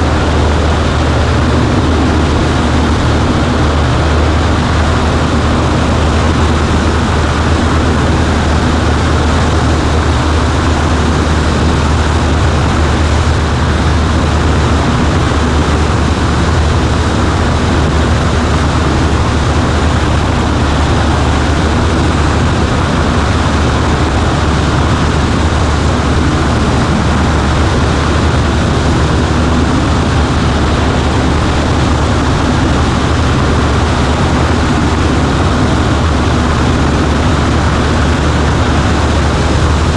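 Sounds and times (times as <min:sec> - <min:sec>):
airplane engine and propeller droning: 0:00.0 - 0:39.9.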